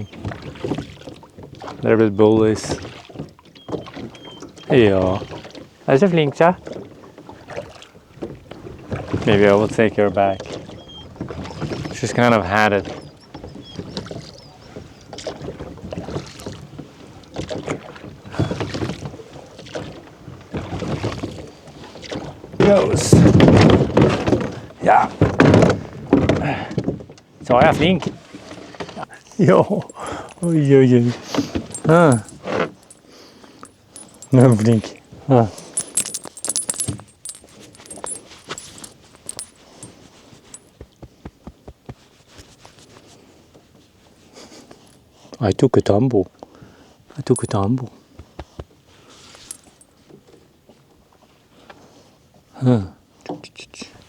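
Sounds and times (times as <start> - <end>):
oars splashing in water: 2.8 - 4.6, 6.6 - 9.3
metallic jingling and clinks: 29.7 - 40.7, 47.2 - 47.7, 49.4 - 49.9.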